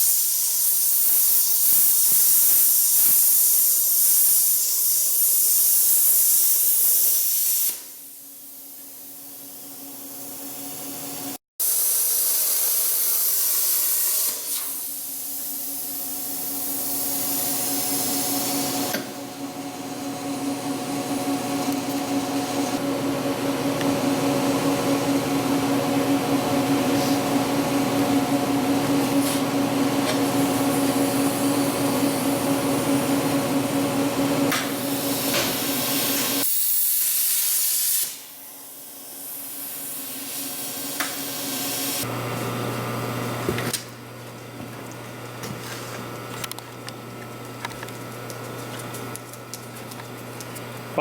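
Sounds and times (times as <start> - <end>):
plasma cutter hissing and buzzing: 0.0 - 10.8, 11.6 - 19.0, 34.6 - 42.1
blast of air hiss: 34.9 - 38.4.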